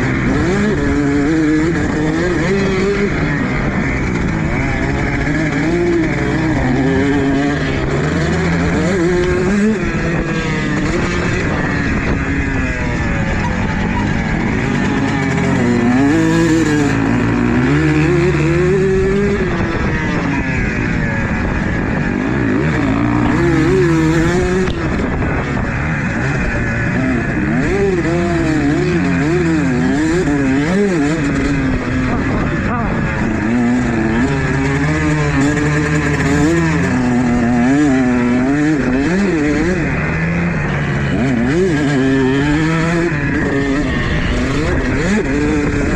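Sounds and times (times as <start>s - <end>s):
dirt bike engine revving: 0.0s - 45.9s.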